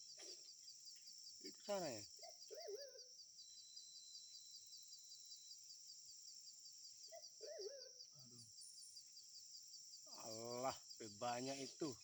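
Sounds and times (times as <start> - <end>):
insect drone with pulsing chirp: 0.0 - 12.0
pigeon whistled calls: 2.2 - 3.0, 7.1 - 8.0.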